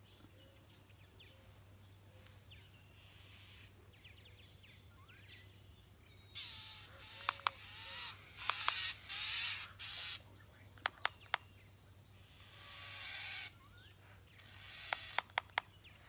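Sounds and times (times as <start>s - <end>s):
sharp clicks: 7.2s - 7.6s, 8.4s - 9.0s, 10.8s - 11.5s, 14.8s - 15.7s.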